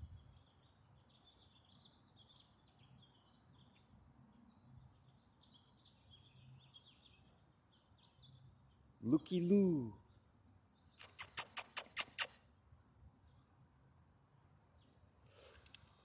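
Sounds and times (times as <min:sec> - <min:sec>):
birds chirping: 0:11.0 - 0:12.3.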